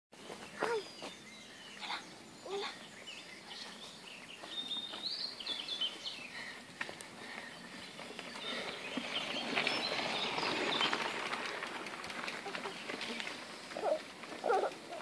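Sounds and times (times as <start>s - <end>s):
birds singing: 0.2s - 11.6s, 12.3s - 15.0s.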